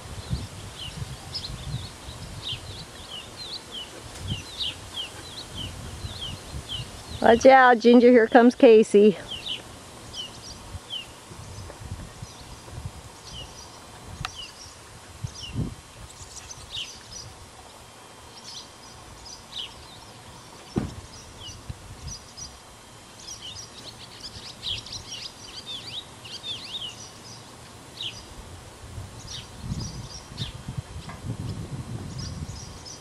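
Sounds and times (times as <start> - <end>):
small birds chirping: 0.2 - 28.4, 29.2 - 33.0
dull thumps: 20.7 - 21.0.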